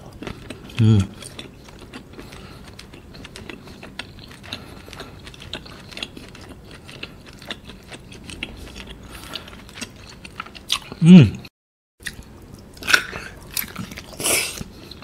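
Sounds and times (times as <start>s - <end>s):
wet chewing clicks and smacks: 0.0s - 11.0s.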